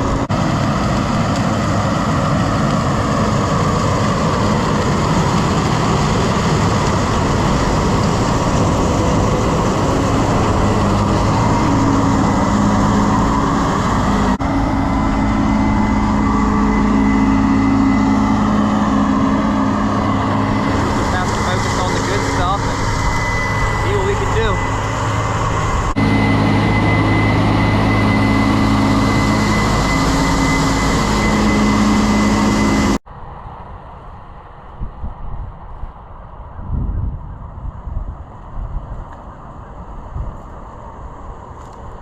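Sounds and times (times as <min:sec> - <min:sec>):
harvester rushing noise: 0:00.0 - 0:33.6
diesel engine hum: 0:00.0 - 0:42.0.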